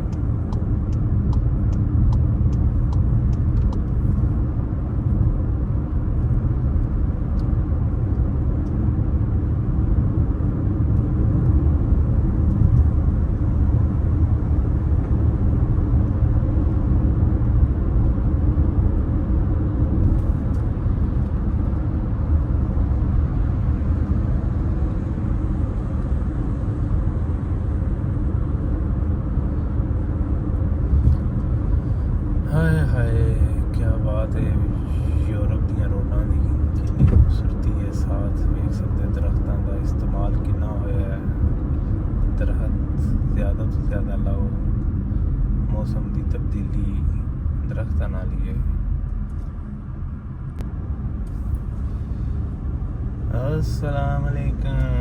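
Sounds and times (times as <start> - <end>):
light ticks: 0.0 - 4.0
car road and engine rumble: 0.0 - 55.0.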